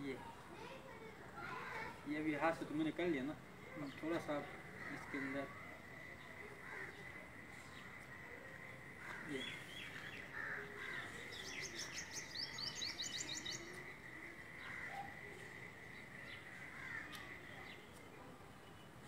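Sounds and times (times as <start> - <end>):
bird high chirps: 9.3 - 18.0.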